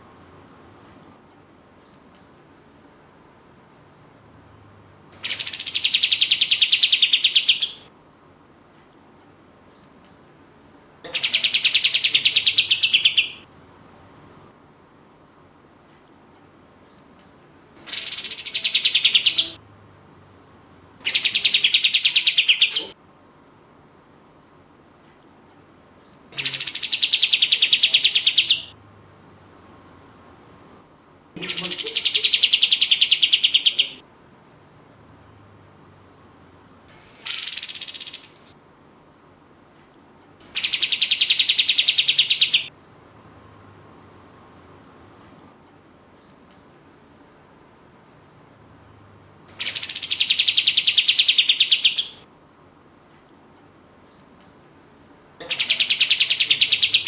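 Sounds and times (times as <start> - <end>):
songbird trilling: 5.2 - 7.9, 11.1 - 13.4, 17.9 - 19.6, 21.1 - 22.9, 26.4 - 28.7, 31.4 - 34.0, 37.3 - 38.4, 40.6 - 42.7, 49.6 - 52.2, 55.4 - 57.0
songbird rattling trills: 55.4 - 57.0.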